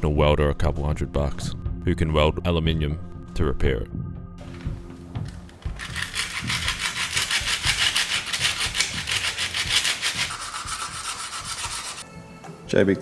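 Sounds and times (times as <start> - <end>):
abrasive tool scrubbing metal: 5.5 - 12.1.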